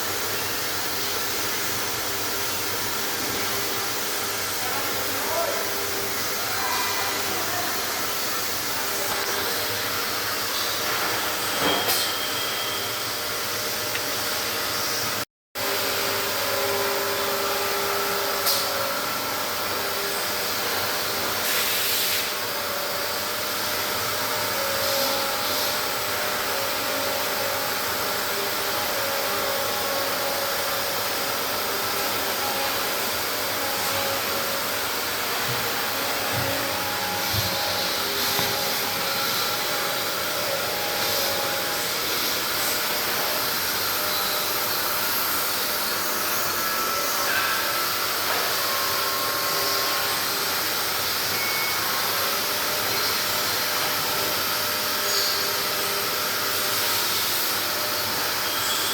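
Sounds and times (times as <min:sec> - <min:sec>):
machinery running: 0:26.2 - 0:58.7.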